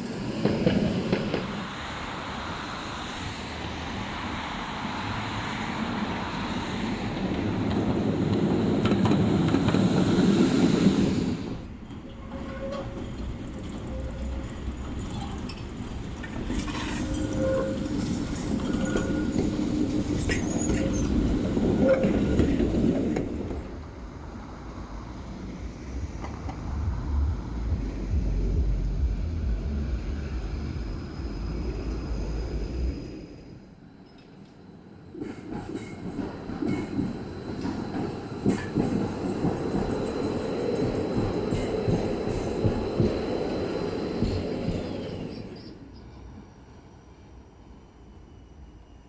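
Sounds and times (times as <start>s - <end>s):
tram wheels clattering on track: 0.0s - 1.9s, 5.4s - 24.3s, 34.0s - 46.2s.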